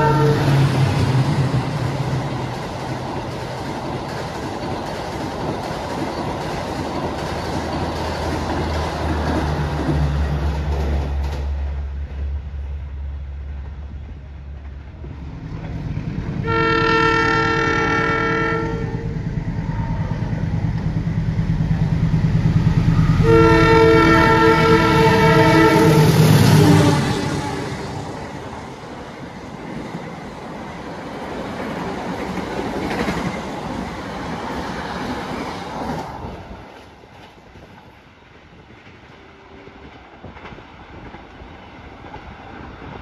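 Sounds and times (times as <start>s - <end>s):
multi-tone train horn: 0.0s - 0.9s, 16.4s - 20.3s, 22.9s - 28.4s, 39.0s - 40.0s
diesel locomotive engine drone: 0.0s - 43.0s
train rolling on rails: 0.0s - 43.0s.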